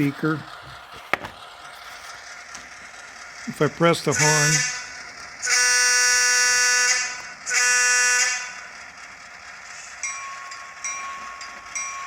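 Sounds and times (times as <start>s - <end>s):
locomotive horn through speaker: 4.1s - 4.8s, 5.4s - 8.5s
locomotive bell ringing: 9.6s - 12.0s.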